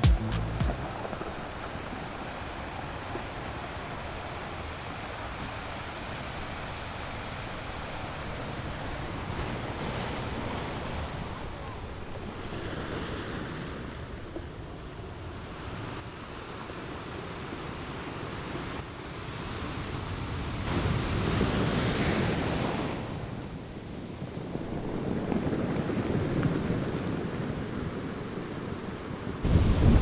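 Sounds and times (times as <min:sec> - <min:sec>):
wind buffeting microphone: 0:23.7 - 0:30.0.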